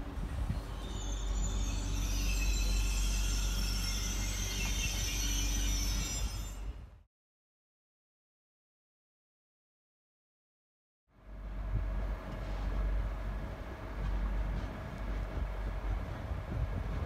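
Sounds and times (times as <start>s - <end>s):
train rumbling: 0.0s - 7.0s, 11.2s - 17.0s
train wheel squeal: 0.2s - 7.0s.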